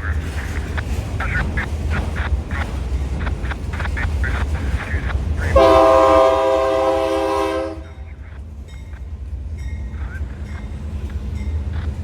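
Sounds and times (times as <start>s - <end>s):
low rumble of train: 0.0s - 12.0s
locomotive air horn chord: 5.5s - 8.0s.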